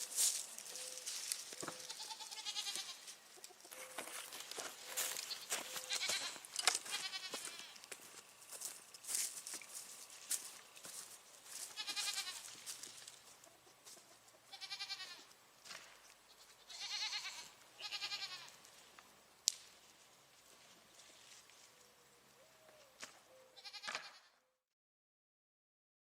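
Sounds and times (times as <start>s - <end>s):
goats bleating: 1.7s - 3.1s, 5.3s - 7.8s, 11.6s - 12.6s, 14.5s - 15.3s, 16.3s - 18.6s, 23.6s - 24.3s.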